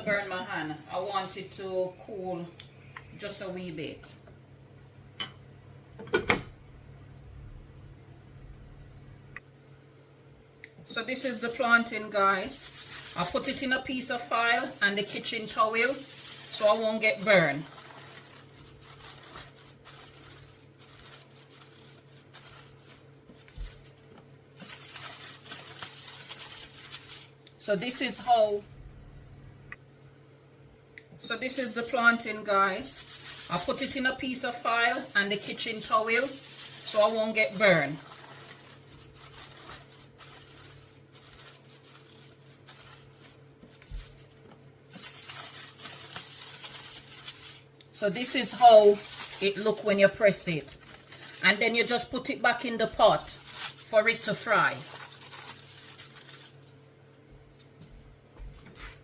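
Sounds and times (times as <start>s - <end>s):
foil and paper towel crinkling: 0.0s - 2.2s, 11.0s - 28.7s, 32.4s - 56.9s
low steady hum: 0.0s - 59.0s.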